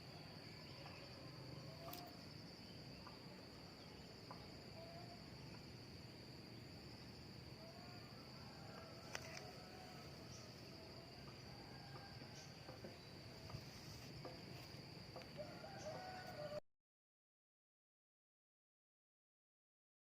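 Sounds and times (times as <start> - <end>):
high-pitched insect drone: 0.0 - 16.6
faint chirps and clicks: 1.8 - 2.3.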